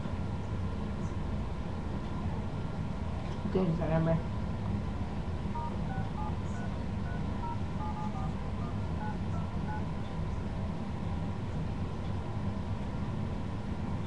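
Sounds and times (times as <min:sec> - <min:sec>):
phone keypad touch tones: 0:05.6 - 0:09.9.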